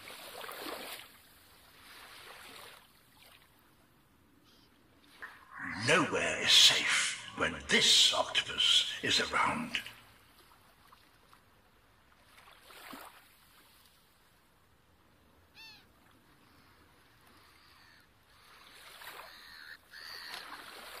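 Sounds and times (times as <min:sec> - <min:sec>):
outdoor ambience: 0:04.2 - 0:11.6.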